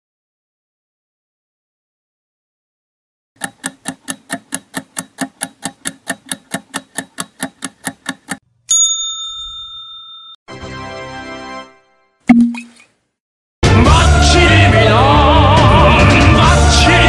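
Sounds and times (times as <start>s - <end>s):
clock ticking quickly: 3.4s - 8.4s
bell ding: 8.7s - 10.4s.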